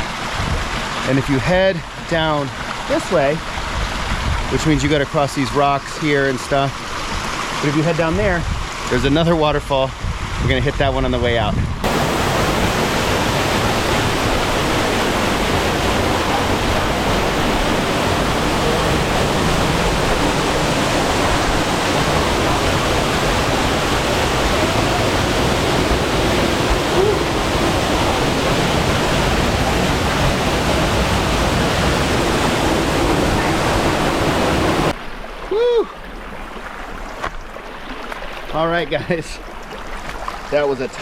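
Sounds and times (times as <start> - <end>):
waterfall pouring: 11.8 - 40.9.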